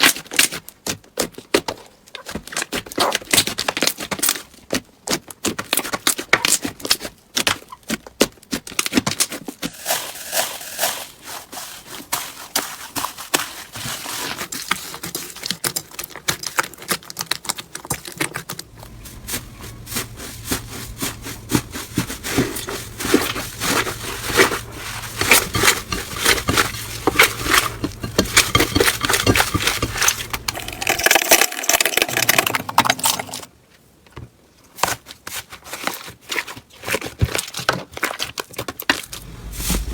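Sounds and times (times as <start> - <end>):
steady low hum: 18.7 - 33.5, 39.0 - 39.9.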